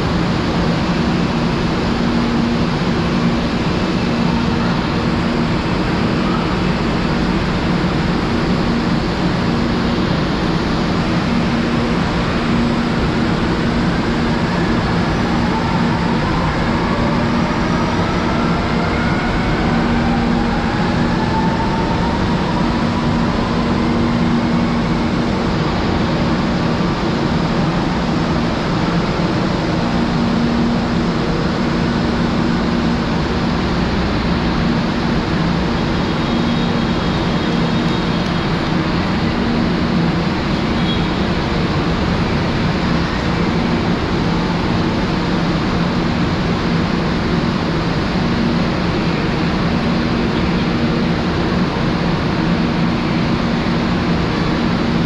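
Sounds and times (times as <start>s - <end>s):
train rumble and hum: 0.0s - 55.0s.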